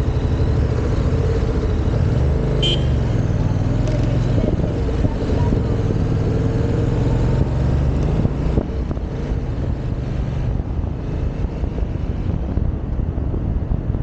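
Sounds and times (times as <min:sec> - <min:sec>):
motorcycle engine running: 0:00.0 - 0:11.4
wind noise on microphone: 0:04.1 - 0:14.0.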